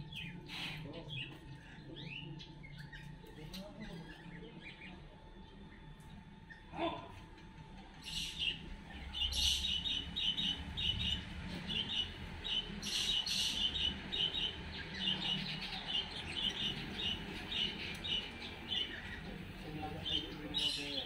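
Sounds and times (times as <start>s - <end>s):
harsh bird calls: 7.9s - 21.0s.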